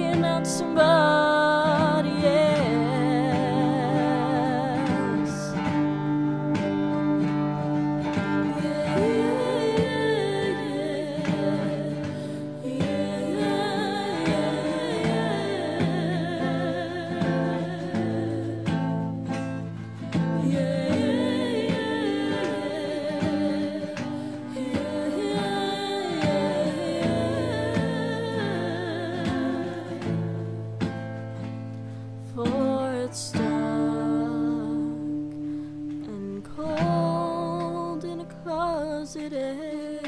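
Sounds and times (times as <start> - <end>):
acoustic guitar: 0.0 - 40.0
percussion: 0.0 - 40.0
person singing wavering vocal: 8.4 - 19.6, 20.2 - 30.3.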